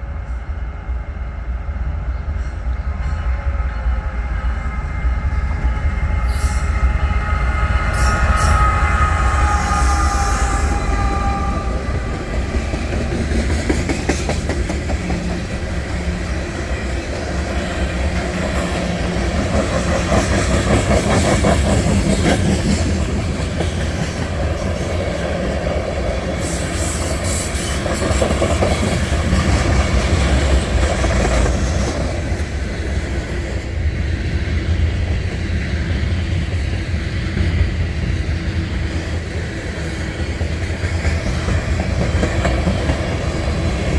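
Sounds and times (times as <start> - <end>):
train rumbling past: 0.0 - 43.9.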